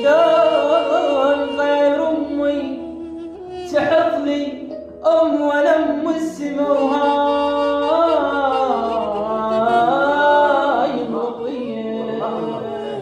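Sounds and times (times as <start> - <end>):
man singing long sliding notes: 0.0 - 13.0.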